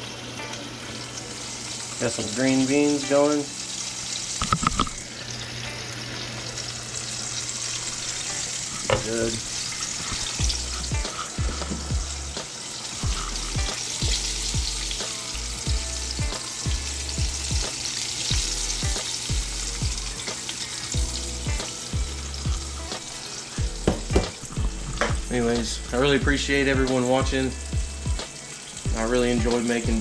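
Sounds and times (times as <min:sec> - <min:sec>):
fish frying in hot oil: 0:00.0 - 0:25.8, 0:26.4 - 0:30.0
background music with beat: 0:10.0 - 0:30.0.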